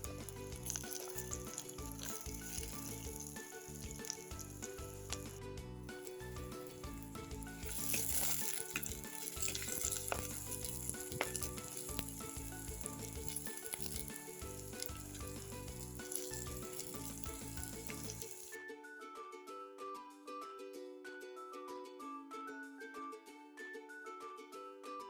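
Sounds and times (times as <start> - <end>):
food sizzling in hot oil: 0.0 - 18.6
quiet background music: 0.0 - 25.0.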